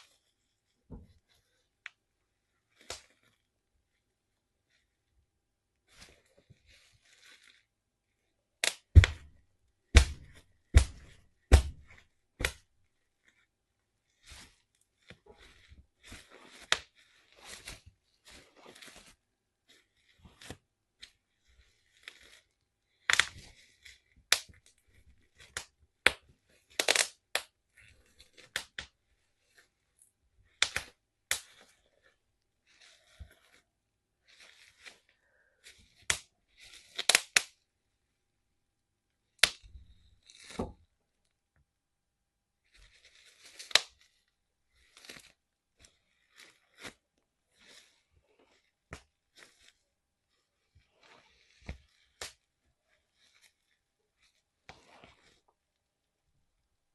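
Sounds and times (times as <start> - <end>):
bubble wrap crinkling: 0.0 - 37.8, 39.2 - 41.5, 42.6 - 56.2
bubble wrap popping: 2.7 - 3.6, 8.6 - 37.7, 39.2 - 41.0, 42.6 - 47.9, 50.8 - 55.6.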